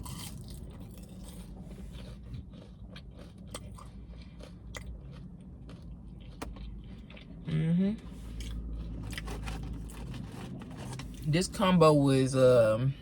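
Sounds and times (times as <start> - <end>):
person chewing fries: 0.0 - 11.5.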